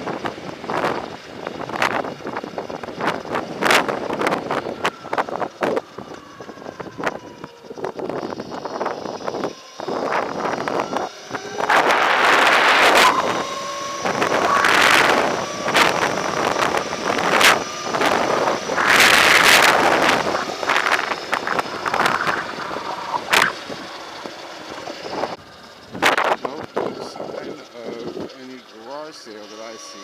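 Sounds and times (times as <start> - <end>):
wind rushing over microphone: 0.0 - 28.3.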